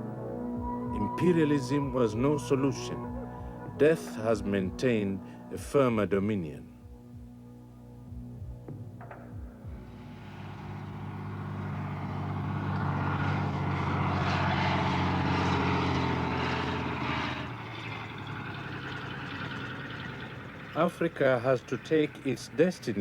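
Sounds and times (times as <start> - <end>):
propeller aircraft passing by: 9.6 - 23.0.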